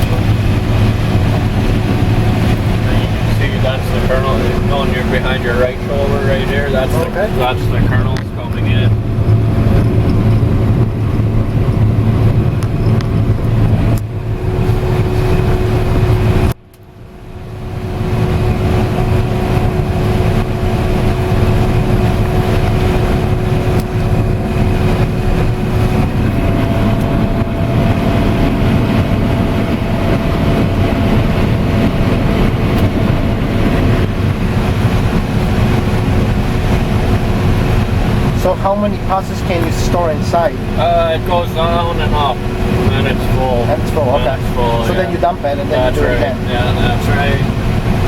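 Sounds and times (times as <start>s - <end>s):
combine harvester drone: 0.0s - 48.0s.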